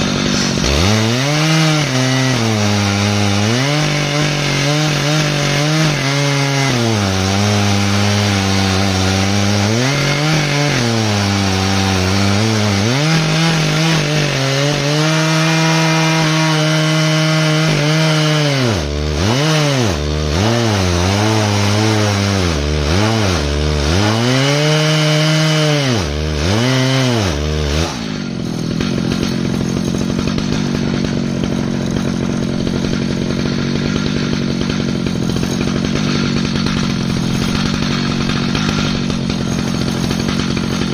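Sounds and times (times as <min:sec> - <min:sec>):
chainsaw cutting through log: 0:00.0 - 0:40.9.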